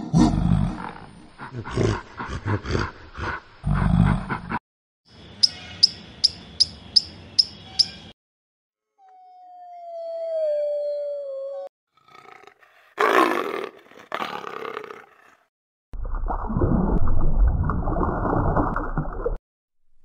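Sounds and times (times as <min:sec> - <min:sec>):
gorilla grunting: 0:00.0 - 0:04.6
squirrel high chirps: 0:05.4 - 0:08.1.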